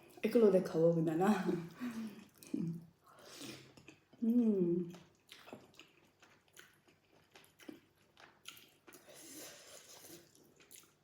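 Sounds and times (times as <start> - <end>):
chewing with mouth clicks: 3.4 - 11.0.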